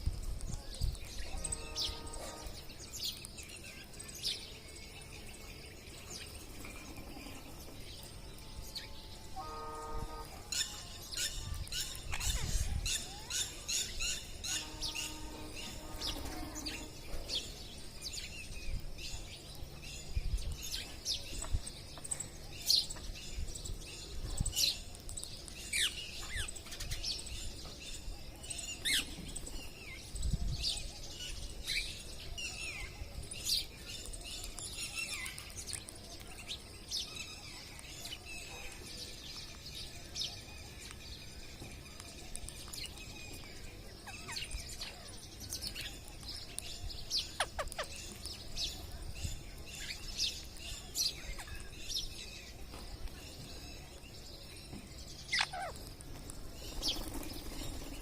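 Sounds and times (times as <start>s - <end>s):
parrots calling: 47.2s - 48.2s, 55.3s - 56.0s.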